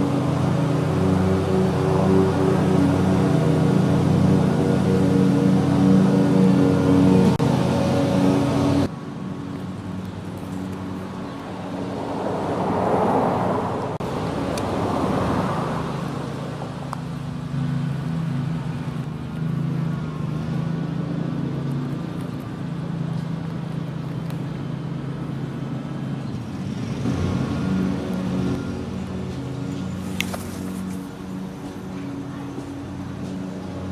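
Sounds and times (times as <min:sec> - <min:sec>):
vehicle engine humming: 0:00.0 - 0:33.9.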